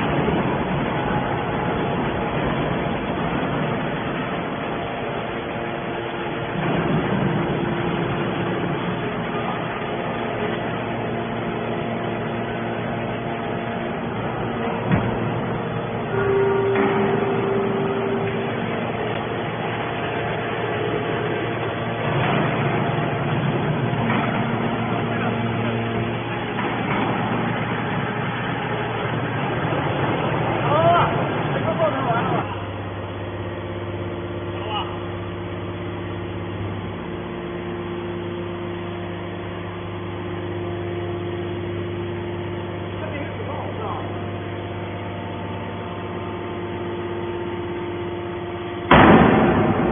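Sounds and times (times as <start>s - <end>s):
hydraulic baler machine noise: 0.0s - 49.9s
steady tone: 10.7s - 23.8s.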